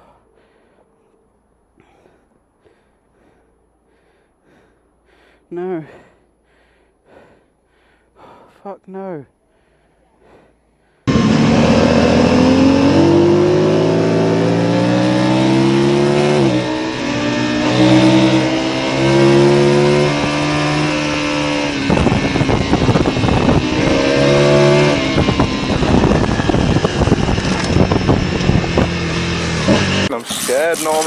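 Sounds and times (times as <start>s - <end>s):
motorcycle engine accelerating: 11.1s - 31.0s
wind buffeting microphone: 19.9s - 29.5s.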